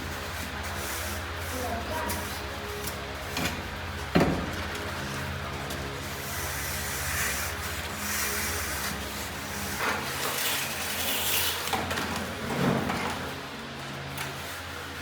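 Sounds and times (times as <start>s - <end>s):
rough scraping strokes: 6.1s - 11.7s.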